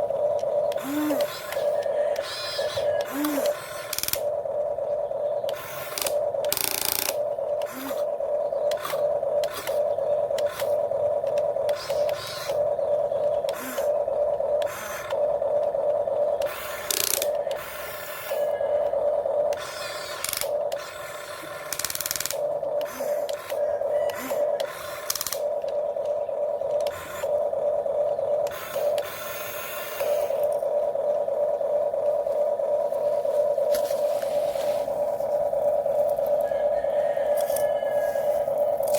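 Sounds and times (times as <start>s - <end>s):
electric motors whining: 0.0s - 38.9s.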